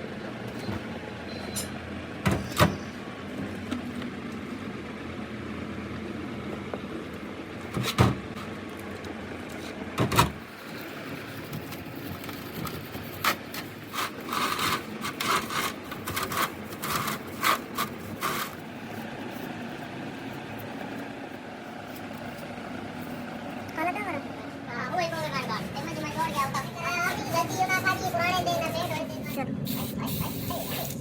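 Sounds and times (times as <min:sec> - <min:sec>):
steady low hum: 0:00.0 - 0:31.0
short scraping strokes: 0:12.8 - 0:19.8.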